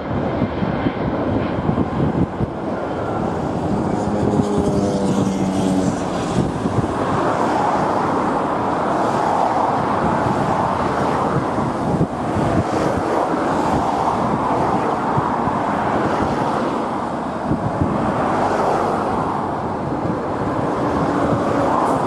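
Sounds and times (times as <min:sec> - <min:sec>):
road traffic noise: 0:00.0 - 0:22.0
wind buffeting microphone: 0:00.0 - 0:22.0.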